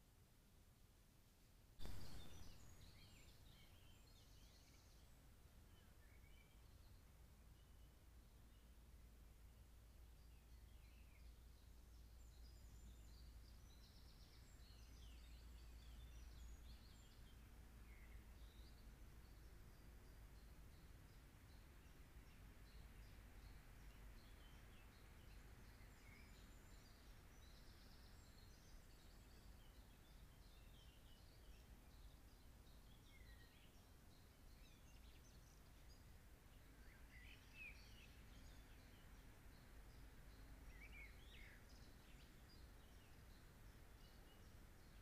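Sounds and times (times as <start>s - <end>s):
low background hiss: 0.0s - 45.0s
distant birds chirping: 1.8s - 4.9s.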